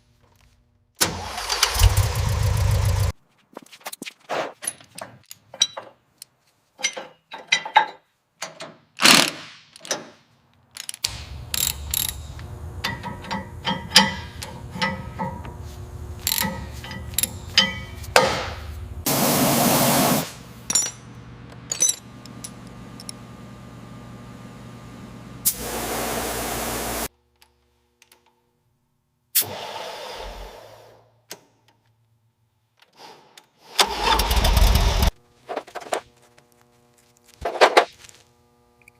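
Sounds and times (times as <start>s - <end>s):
sharp mechanical clicks and knocks: 8.4s - 15.5s, 16.2s - 18.6s
steady low hum: 11.1s - 27.1s.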